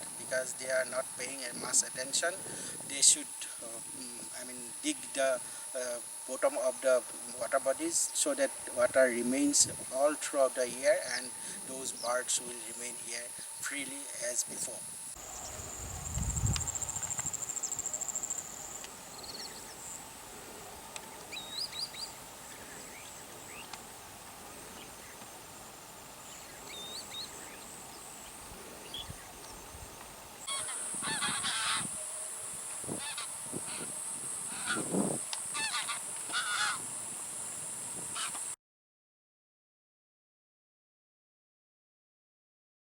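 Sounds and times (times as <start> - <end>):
high-pitched insect buzz: 0.0 - 20.1, 24.5 - 38.6
geese honking: 30.4 - 32.2, 32.8 - 36.9, 38.0 - 38.5.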